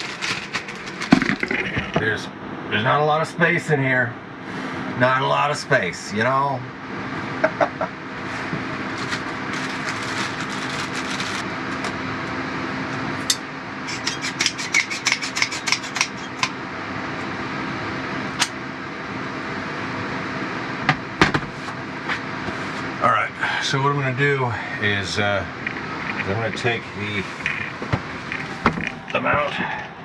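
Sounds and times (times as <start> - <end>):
steady fan-like hum: 0.0 - 30.0.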